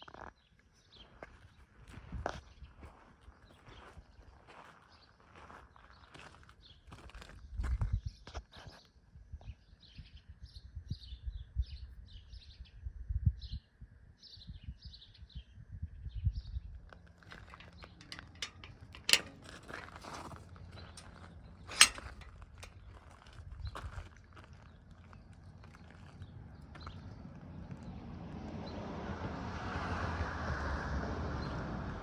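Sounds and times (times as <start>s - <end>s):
low rumbling: 17.4s - 20.2s
sharp clicks: 17.6s - 19.8s, 21.0s - 22.7s.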